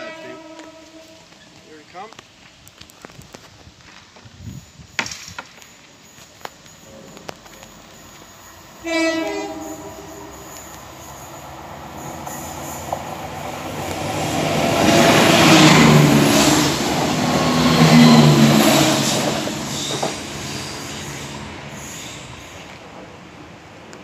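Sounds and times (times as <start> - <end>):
train horn: 0.0 - 1.3, 8.8 - 10.4, 14.4 - 16.9, 17.5 - 20.1
diesel train passing: 0.0 - 1.9, 6.1 - 24.0.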